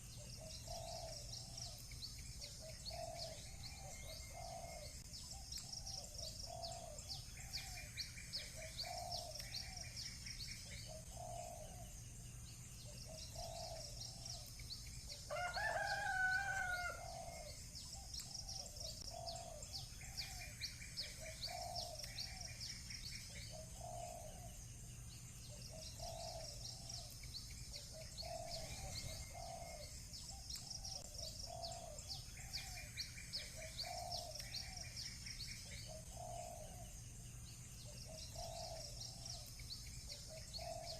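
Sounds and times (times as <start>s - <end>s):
dove cooing: 0.0s - 1.8s, 2.4s - 9.9s, 10.6s - 11.9s, 12.8s - 14.5s, 15.1s - 22.6s, 23.3s - 24.6s, 25.5s - 27.1s, 27.7s - 35.0s, 35.6s - 36.9s, 37.8s - 39.5s, 40.1s - 40.9s
small birds chirping: 0.0s - 40.9s
rooster crowing: 15.3s - 17.4s.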